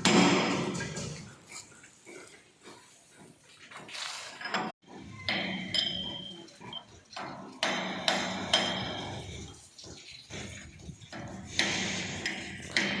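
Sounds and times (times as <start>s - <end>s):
hammer striking metal: 0.0s - 1.0s, 7.6s - 9.2s.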